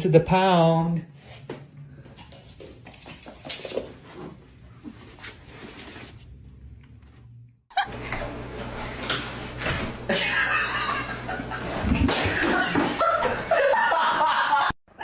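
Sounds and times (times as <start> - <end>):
person laughing: 7.7 - 8.0, 10.1 - 14.8.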